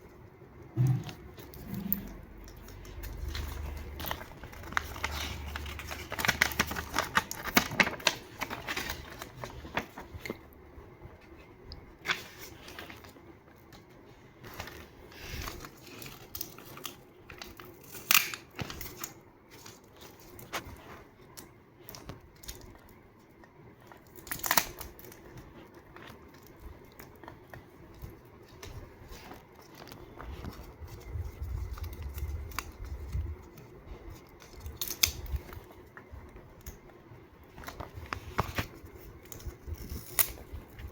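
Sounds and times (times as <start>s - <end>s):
paper rustling and crinkling: 0.8s - 40.9s
scissors snipping paper: 38.4s - 40.9s.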